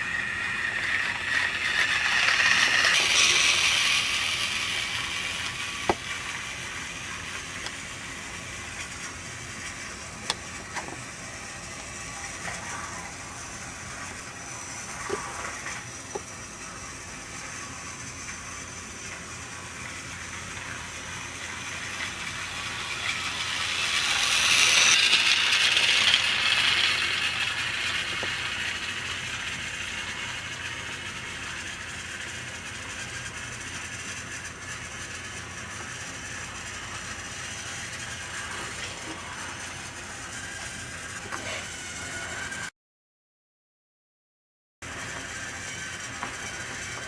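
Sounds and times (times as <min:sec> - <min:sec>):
toy train motor whirring: 0:00.0 - 0:42.7, 0:44.8 - 0:47.0.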